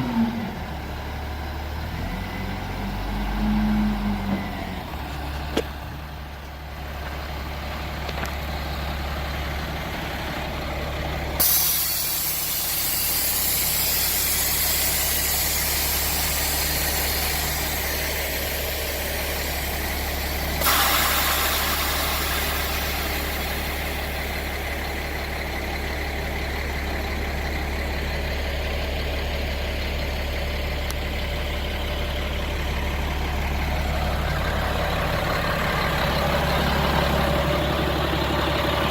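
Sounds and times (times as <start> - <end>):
diesel truck engine idling: 0.0 - 38.9
air brake system hissing: 11.4 - 25.0.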